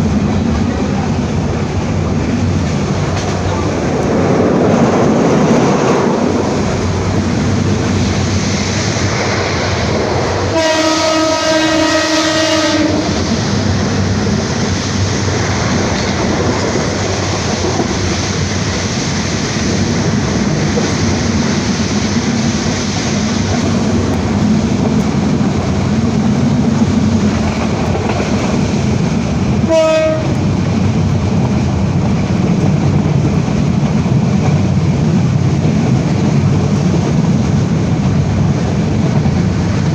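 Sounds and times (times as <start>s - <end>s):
train running on track: 0.0s - 39.9s
train horn: 10.5s - 13.2s, 29.6s - 30.4s.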